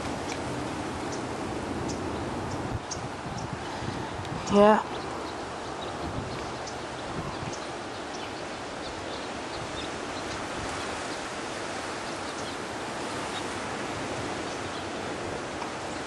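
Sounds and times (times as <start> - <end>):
strong wind rushing: 0.0 - 7.6.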